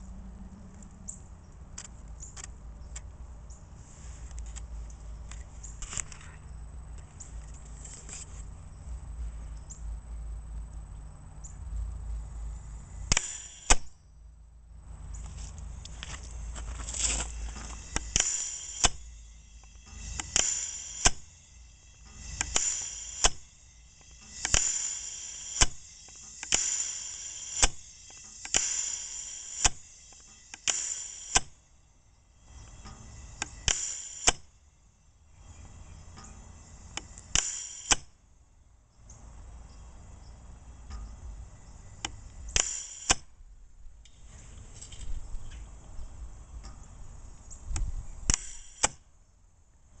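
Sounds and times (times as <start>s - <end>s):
sharp valve click: 13.1s - 14.0s, 17.8s - 31.6s, 32.7s - 34.5s, 36.1s - 38.2s, 42.0s - 43.3s, 47.7s - 49.0s
propane hiss: 16.0s - 38.0s.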